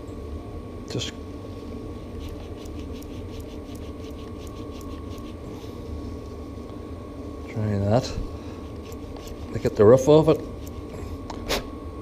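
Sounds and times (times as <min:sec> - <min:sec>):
wire wool rasping on rusty metal: 0:02.2 - 0:05.4, 0:08.7 - 0:09.9.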